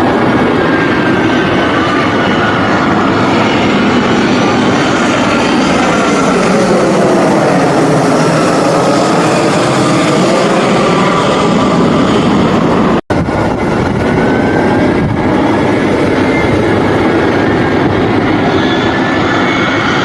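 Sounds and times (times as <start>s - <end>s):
aircraft engine noise passing: 0.0s - 20.0s.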